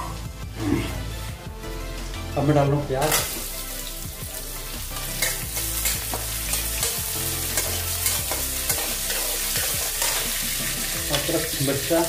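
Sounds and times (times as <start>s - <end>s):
onions sizzling in oil: 3.0s - 12.0s
spatula scraping a pan: 5.0s - 11.2s.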